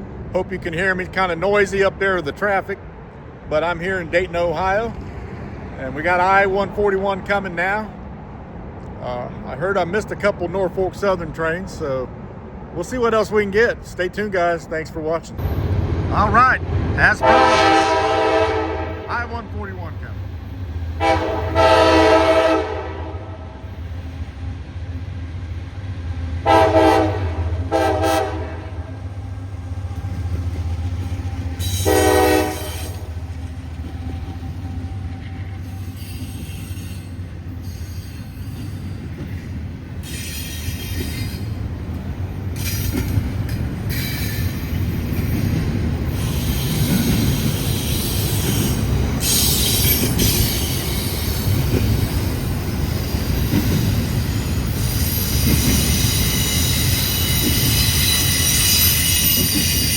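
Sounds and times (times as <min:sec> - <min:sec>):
train passing rumble: 0:00.0 - 0:59.9
train horn blasts: 0:17.2 - 0:19.4, 0:21.0 - 0:23.8, 0:26.4 - 0:29.0, 0:31.6 - 0:33.3
train wheel squeal: 0:30.7 - 0:33.2, 0:33.8 - 0:41.7, 0:42.3 - 0:59.9.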